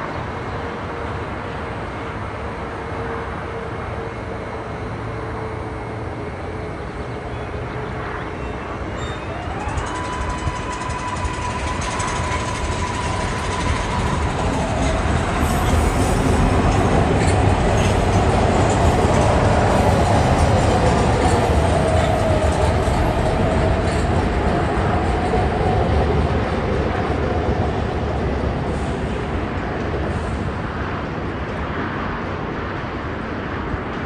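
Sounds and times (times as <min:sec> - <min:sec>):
electric train motors whining: 0:08.6 - 0:25.4.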